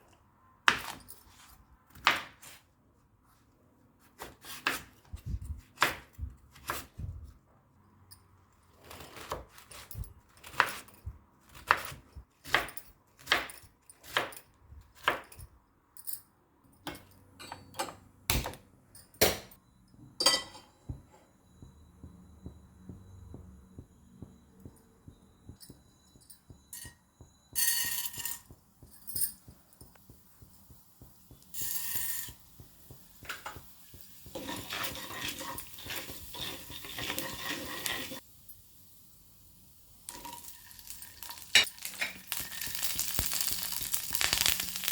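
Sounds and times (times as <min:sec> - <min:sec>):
kitchen utensils clattering: 0:20.2 - 0:20.9, 0:34.2 - 0:38.2, 0:40.1 - 0:44.9.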